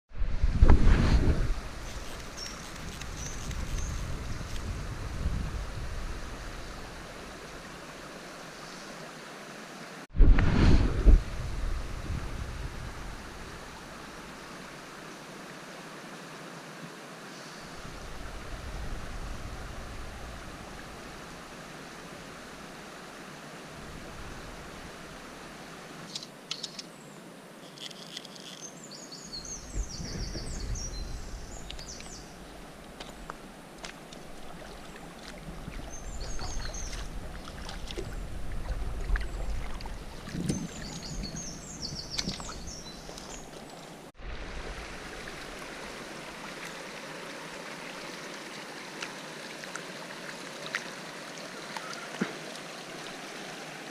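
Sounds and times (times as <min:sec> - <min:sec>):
flowing river water: 0:01.2 - 0:10.1, 0:10.9 - 0:53.9
songbird twittering: 0:01.8 - 0:04.5, 0:28.4 - 0:32.6, 0:35.7 - 0:37.2, 0:40.4 - 0:43.6.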